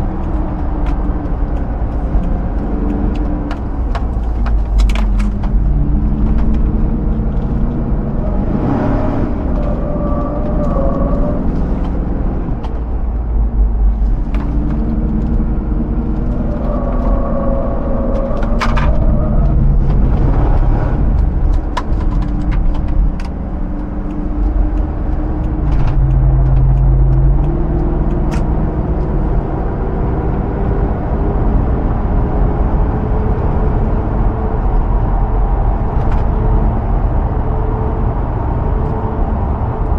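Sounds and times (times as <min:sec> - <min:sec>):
low road rumble: 0:00.0 - 0:39.9
vehicle engine running: 0:00.0 - 0:39.9.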